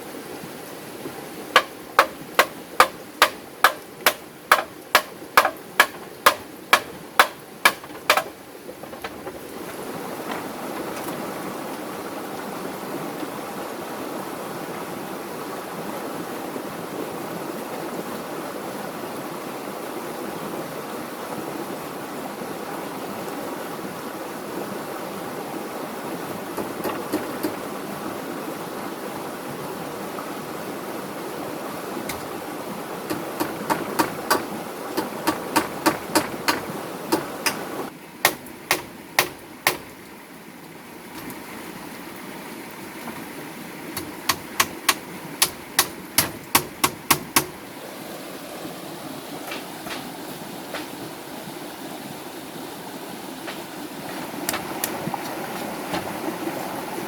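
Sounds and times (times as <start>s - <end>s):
sharp knocks: 1.6s - 11.2s, 26.6s - 27.6s, 32.1s - 32.3s, 33.1s - 40.0s, 44.0s - 47.6s, 49.5s - 51.0s.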